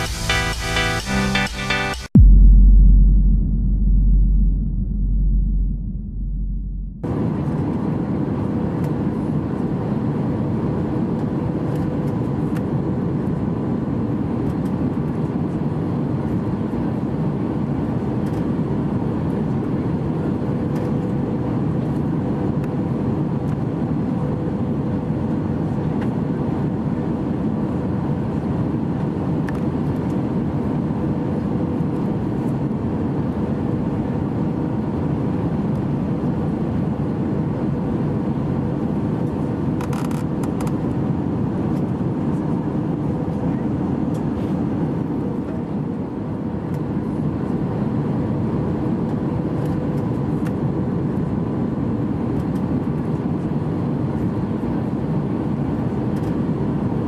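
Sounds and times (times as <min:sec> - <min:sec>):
rushing air: 0:02.2 - 0:07.0.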